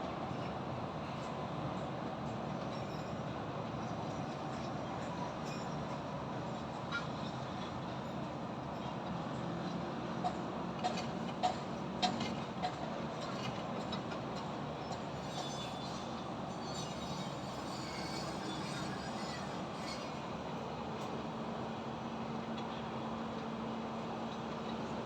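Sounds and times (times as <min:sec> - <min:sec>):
construction work: 0:10.0 - 0:21.9
faint high squeals: 0:15.1 - 0:20.4.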